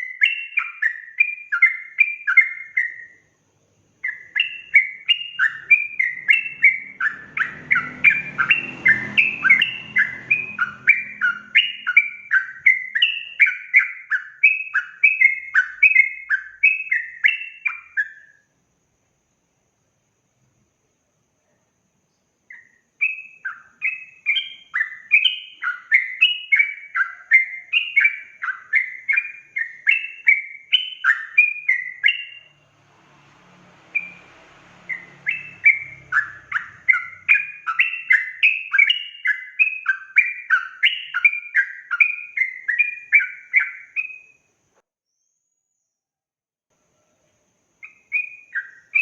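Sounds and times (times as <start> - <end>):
bulbul singing chattering phrases: 4.0 - 18.0.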